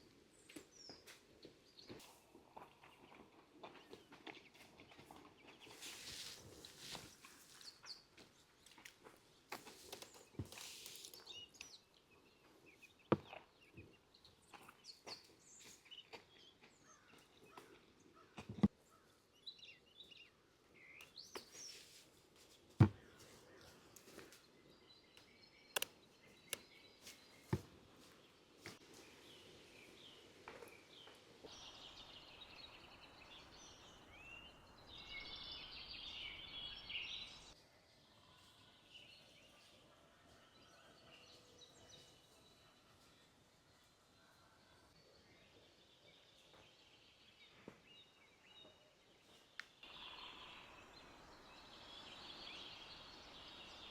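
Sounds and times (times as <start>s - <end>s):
birds chirping: 0.0s - 22.0s, 22.8s - 37.6s, 44.2s - 53.9s.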